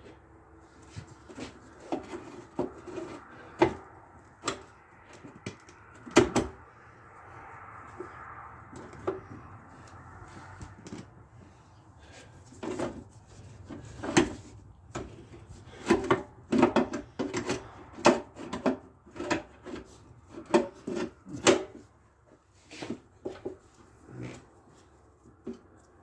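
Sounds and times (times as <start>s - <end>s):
tools and parts knocking: 0.9s - 6.6s, 13.6s - 21.8s.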